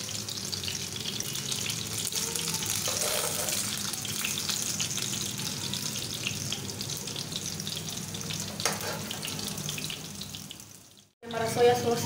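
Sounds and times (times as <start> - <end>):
sausages sizzling in a pan: 0.0 - 12.0
metal spatula scraping and tapping: 2.8 - 3.6, 8.6 - 9.3.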